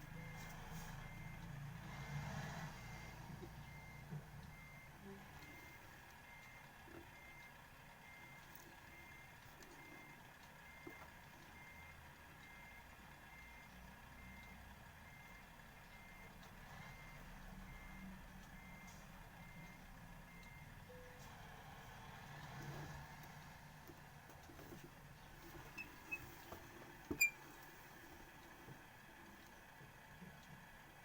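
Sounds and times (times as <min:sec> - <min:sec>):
car reversing beeper: 0:00.0 - 0:21.2
engine and road hum: 0:00.0 - 0:31.0.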